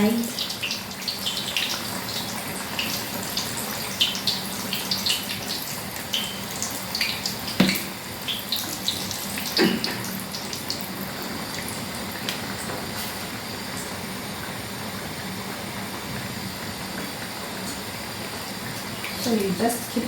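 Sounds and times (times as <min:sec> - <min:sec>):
dough deep-frying in hot oil: 0:00.0 - 0:20.0
spoon knocking pan: 0:07.5 - 0:07.9.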